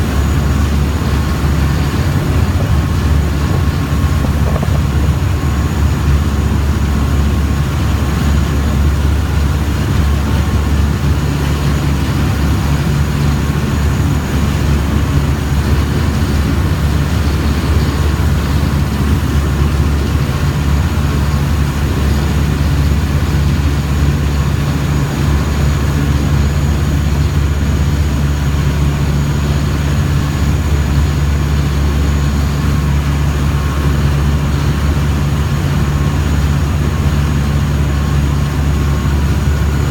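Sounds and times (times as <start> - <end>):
boat engine humming: 0.0 - 39.9
water and hull noise: 0.0 - 39.9.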